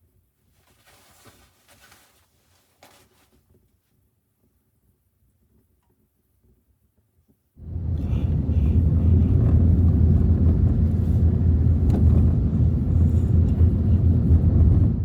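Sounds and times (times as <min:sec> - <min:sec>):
wind buffeting microphone: 0:07.6 - 0:15.0.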